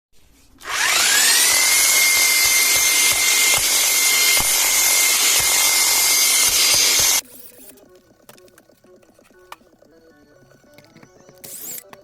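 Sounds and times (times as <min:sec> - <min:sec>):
electric motor whining: 0:00.6 - 0:07.2.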